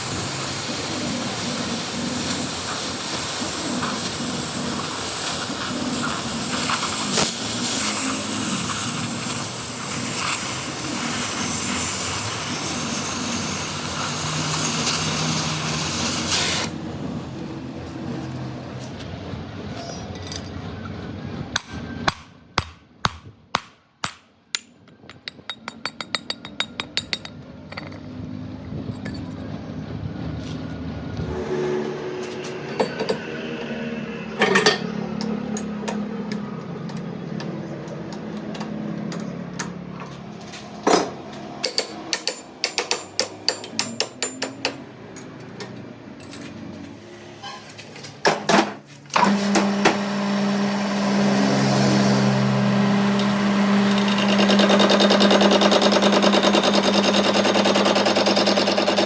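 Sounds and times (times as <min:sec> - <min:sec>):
motor-driven machine humming: 0:31.1 - 0:36.5, 0:49.2 - 0:59.0.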